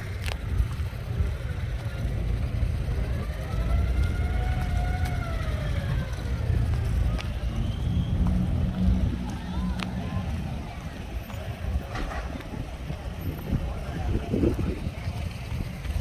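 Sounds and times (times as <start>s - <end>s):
traffic rumble: 0.0s - 16.0s
distant siren wailing: 2.9s - 10.2s.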